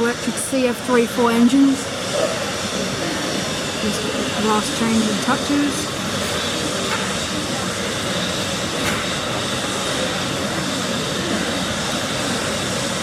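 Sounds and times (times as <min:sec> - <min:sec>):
jet engines idling: 0:00.0 - 0:13.0.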